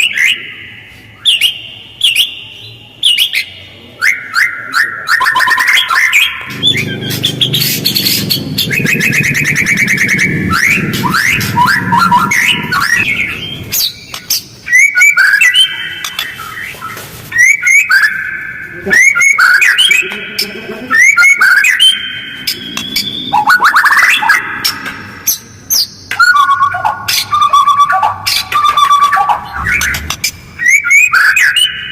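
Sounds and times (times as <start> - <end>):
bird singing rattling trills: 5.2 - 18.4, 19.0 - 31.9
low dense rumble: 29.3 - 30.6.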